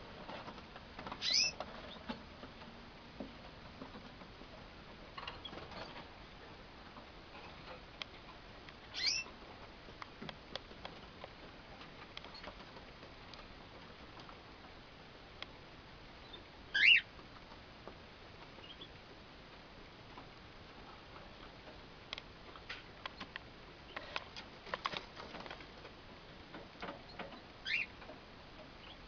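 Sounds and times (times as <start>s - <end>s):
cockatiels calling: 1.2s - 1.6s, 8.9s - 9.3s, 16.7s - 17.1s, 27.6s - 27.9s
light ticks and taps: 6.9s - 8.8s.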